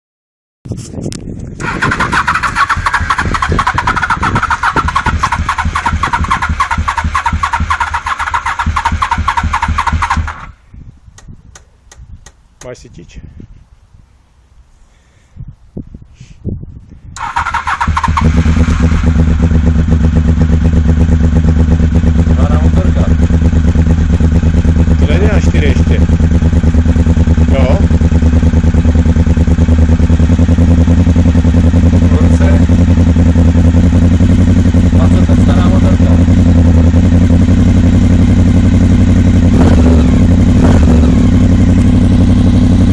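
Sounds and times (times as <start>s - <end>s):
motorcycle engine idling: 1.4s - 10.6s, 17.2s - 42.9s
starter motor cranking: 1.6s - 10.5s, 17.2s - 19.1s.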